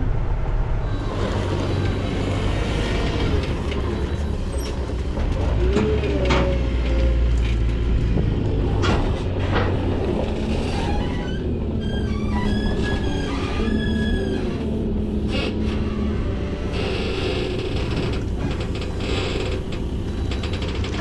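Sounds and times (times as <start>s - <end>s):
diesel engine rumbling: 0.0s - 21.0s.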